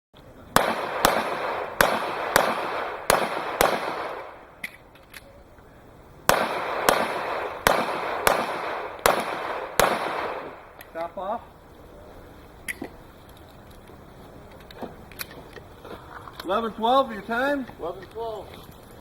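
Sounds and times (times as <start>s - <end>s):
pistol shots with echo: 0.6s - 4.6s, 6.3s - 11.0s.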